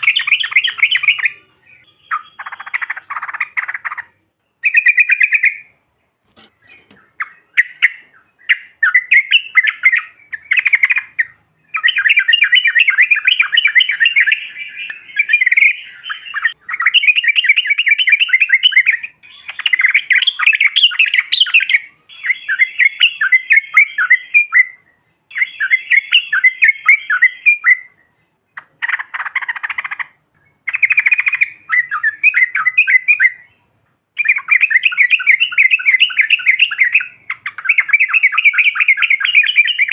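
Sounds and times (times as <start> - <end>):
bird chattering song: 0.0 - 5.8, 6.4 - 39.9.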